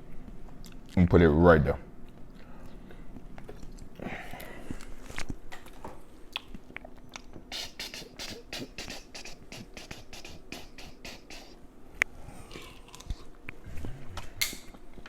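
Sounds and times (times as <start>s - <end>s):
chewing with wet mouth clicks: 0.5s - 1.0s, 6.3s - 11.2s, 12.5s - 13.6s.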